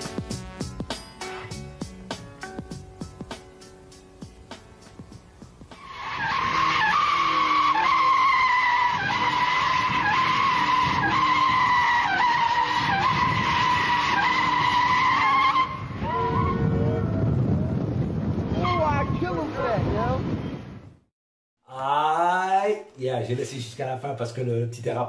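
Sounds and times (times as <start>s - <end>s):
car tyres squealing: 5.8s - 17.2s.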